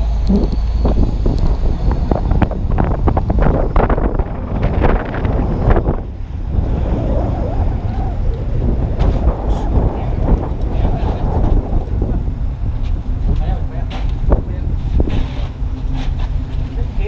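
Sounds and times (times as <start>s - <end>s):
wind buffeting microphone: 0.0s - 17.0s
knocks and clatter: 8.6s - 17.0s.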